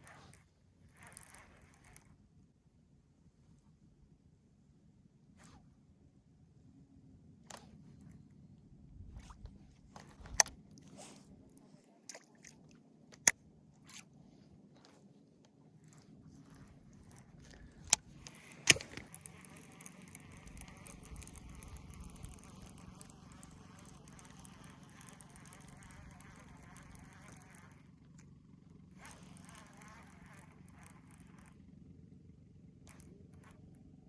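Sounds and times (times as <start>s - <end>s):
fishing reel winding: 0.0s - 2.1s, 15.8s - 28.2s, 28.9s - 31.6s, 32.8s - 33.7s
sharp clicks: 16.5s - 27.8s.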